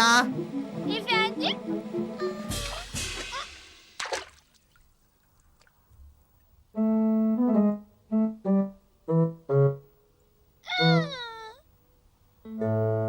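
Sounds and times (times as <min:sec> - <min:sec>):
synth keyboard music cue: 0:06.8 - 0:10.0, 0:12.5 - 0:13.0.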